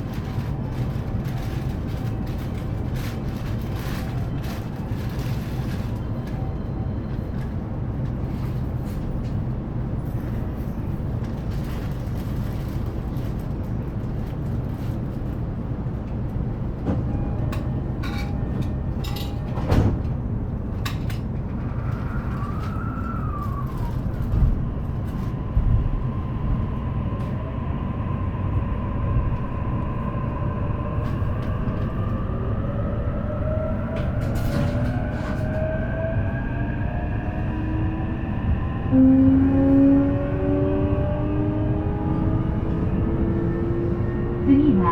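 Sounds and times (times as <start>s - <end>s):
train wheel and rail rumble: 0.0s - 44.9s
rising electric motor whine: 30.8s - 44.6s.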